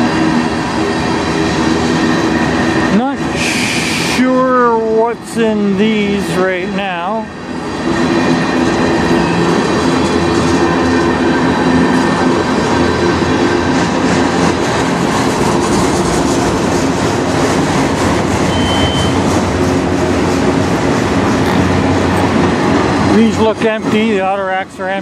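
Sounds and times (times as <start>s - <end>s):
train wheels rumbling on rail: 0.0s - 25.0s
high wheel squeal: 8.2s - 10.4s, 18.4s - 19.3s.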